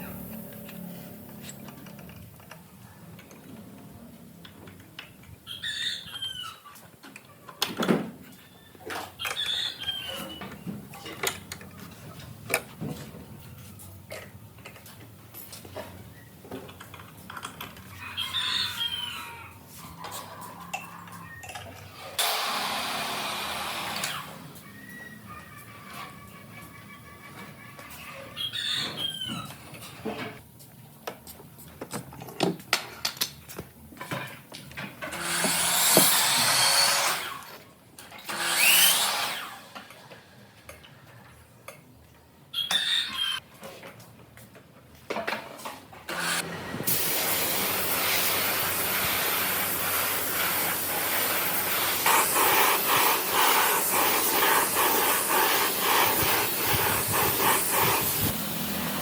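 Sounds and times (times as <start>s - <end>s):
power tool running: 22.2s - 24.5s, 35.1s - 37.5s, 38.1s - 40.0s, 46.1s - 59.0s.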